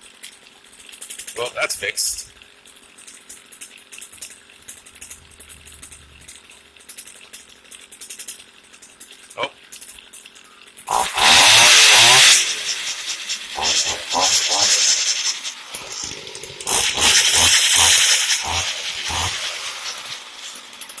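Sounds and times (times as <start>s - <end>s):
string trimmer engine revving: 10.9s - 21.0s.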